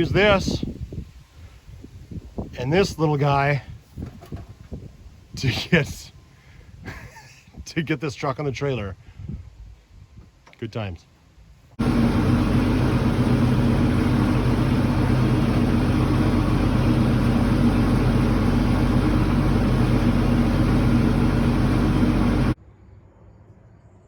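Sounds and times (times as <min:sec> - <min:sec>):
vehicle engine running steadily: 0:11.8 - 0:22.6.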